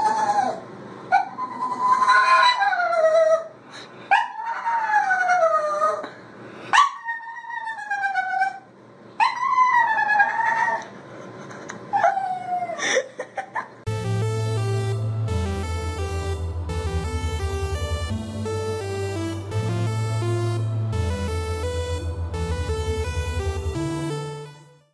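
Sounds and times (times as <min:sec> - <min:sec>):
dog howling: 0:01.2 - 0:03.5, 0:04.2 - 0:06.0, 0:09.2 - 0:10.8.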